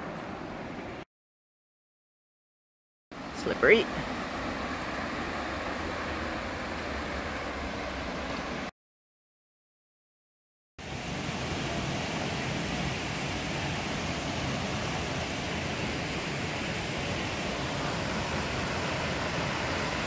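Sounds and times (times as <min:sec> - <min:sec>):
waterfall roaring: 0:03.2 - 0:08.7, 0:10.8 - 0:20.0.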